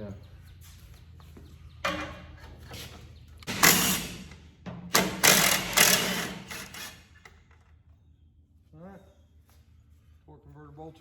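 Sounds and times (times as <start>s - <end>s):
impact wrench rattling: 4.9s - 7.0s.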